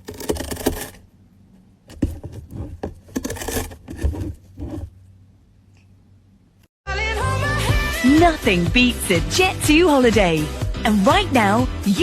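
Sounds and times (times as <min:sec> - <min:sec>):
scratching and rustling: 0:01.9 - 0:05.0.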